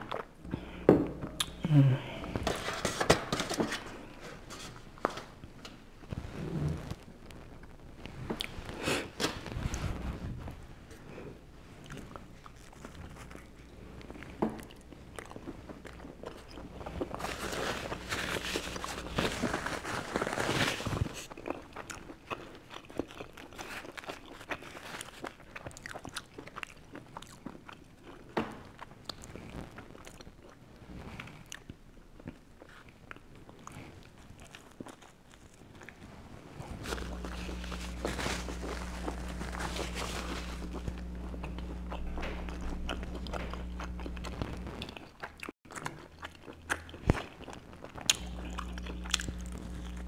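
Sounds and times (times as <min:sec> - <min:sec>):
person chewing crunchy pizza: 0:00.0 - 0:02.8, 0:03.7 - 0:50.0.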